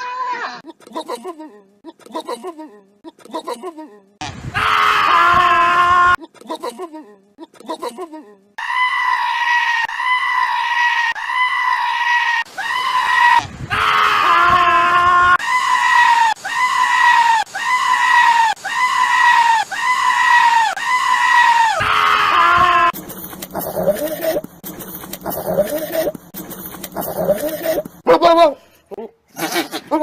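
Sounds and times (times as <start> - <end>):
goat screaming: 8.6 - 23.0, 29.3 - 30.0.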